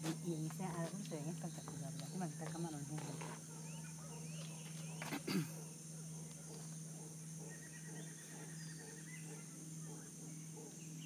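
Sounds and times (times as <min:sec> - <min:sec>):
insect drone: 0:00.0 - 0:11.0
faint animal calls: 0:03.0 - 0:11.0.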